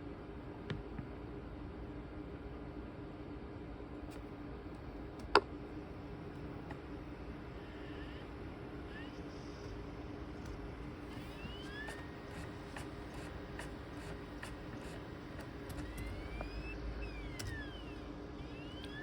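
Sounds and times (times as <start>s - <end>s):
machine hum: 4.8s - 19.0s
disc spinning whine: 5.8s - 19.0s
disc drive seeking clicks: 7.6s - 19.0s.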